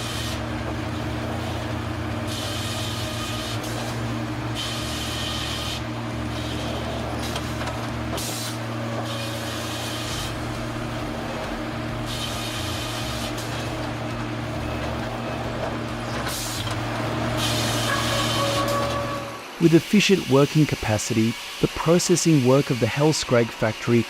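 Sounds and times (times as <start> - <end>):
sawmill machinery humming: 0.0 - 24.0.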